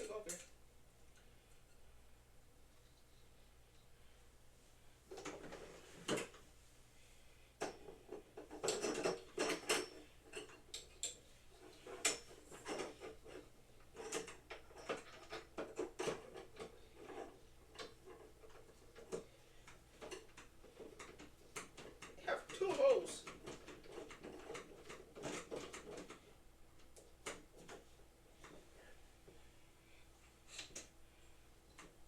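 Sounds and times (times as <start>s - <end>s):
parts clicking and rattling: 7.6s - 28.7s.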